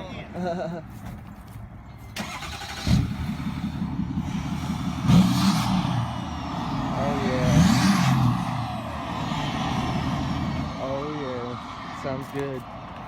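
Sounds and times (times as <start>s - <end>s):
diesel engine revving: 2.2s - 11.6s.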